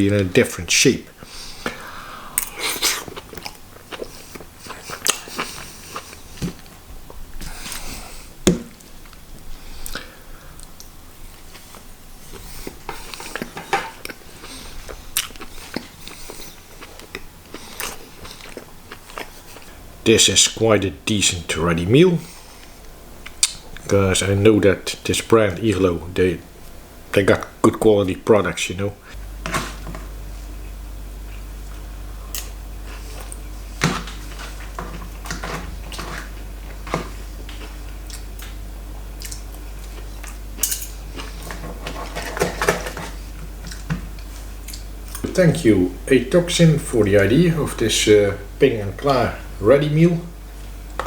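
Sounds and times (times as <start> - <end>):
steady low hum: 0.0 - 51.0
person chewing food: 1.2 - 19.8, 30.5 - 42.2, 43.0 - 45.2.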